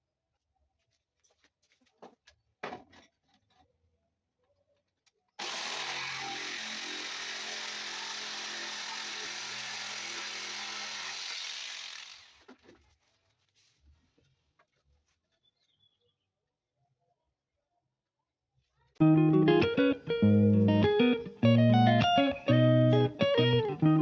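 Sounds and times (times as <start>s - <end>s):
power tool cutting wood: 5.4s - 12.5s.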